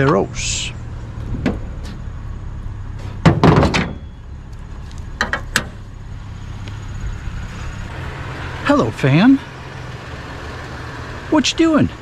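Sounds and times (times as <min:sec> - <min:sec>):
steady low hum: 0:00.0 - 0:11.3
heavy thud: 0:03.0 - 0:04.0
sharp knocks: 0:03.2 - 0:04.0.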